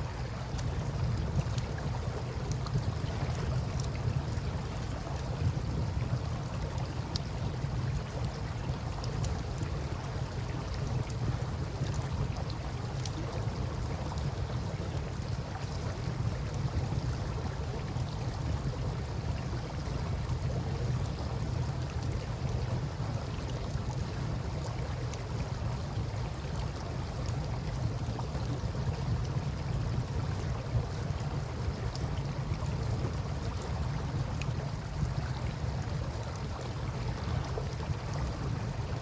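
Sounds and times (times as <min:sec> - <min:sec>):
river water flowing: 0:00.0 - 0:39.0
campfire crackling: 0:00.4 - 0:19.6.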